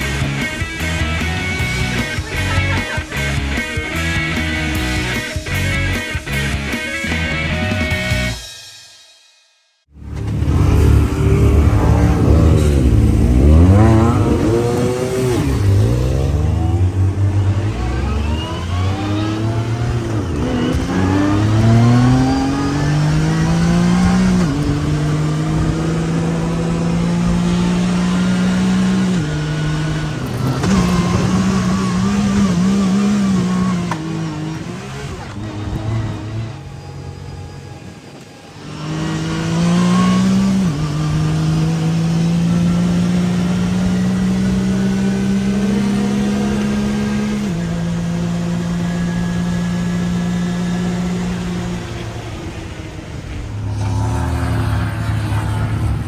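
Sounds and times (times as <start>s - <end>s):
utv engine accelerating: 0.0s - 8.4s, 9.9s - 56.0s
rushing noise: 9.9s - 42.7s, 50.1s - 56.0s.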